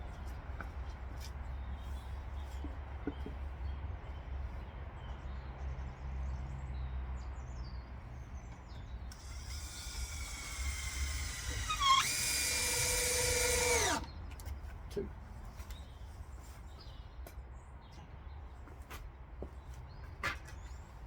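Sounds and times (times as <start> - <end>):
cordless drill motor whine: 9.1 - 14.1.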